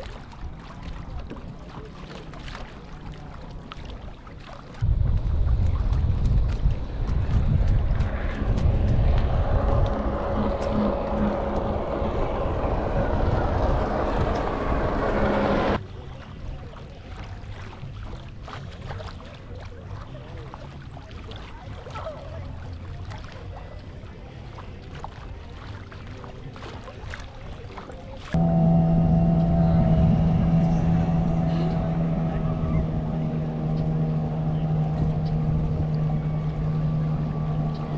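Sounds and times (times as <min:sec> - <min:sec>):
boat motor humming: 0:00.0 - 0:37.9
water lapping: 0:00.0 - 0:37.9
wind noise: 0:04.8 - 0:15.8.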